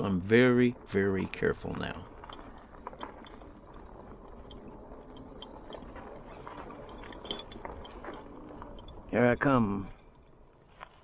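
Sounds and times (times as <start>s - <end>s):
tyre and wind noise: 0.0s - 11.0s
faint clicks and rattles: 1.9s - 9.2s.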